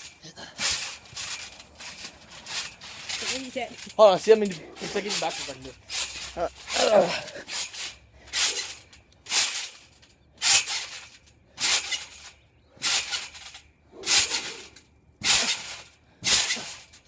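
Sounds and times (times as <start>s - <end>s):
trampoline landings on springs: 0.0s - 17.0s.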